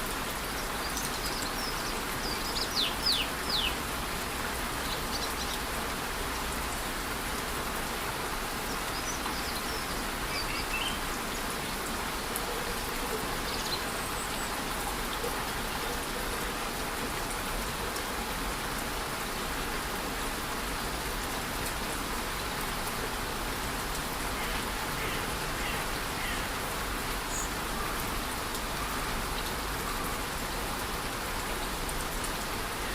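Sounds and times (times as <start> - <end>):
light rain: 0.0 - 32.9
waterfall rushing: 19.9 - 32.9.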